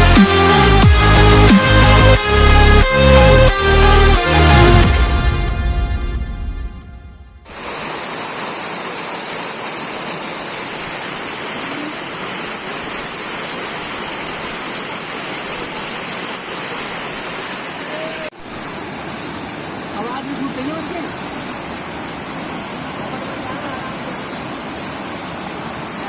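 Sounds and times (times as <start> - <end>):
waterfall rushing: 7.5 - 26.0.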